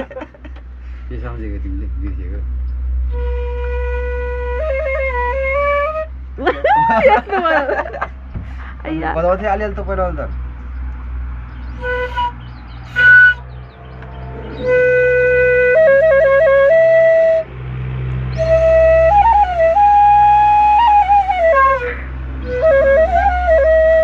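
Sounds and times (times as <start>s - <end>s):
flute melody: 3.1s - 7.2s, 11.7s - 17.5s, 18.2s - 24.0s.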